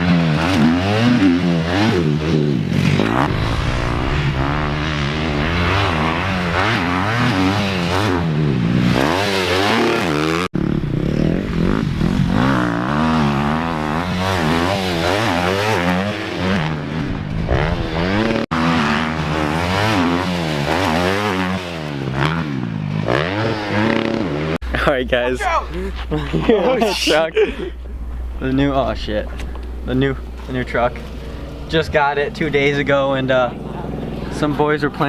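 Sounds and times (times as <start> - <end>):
motorcycle engine revving: 0.0 - 24.6.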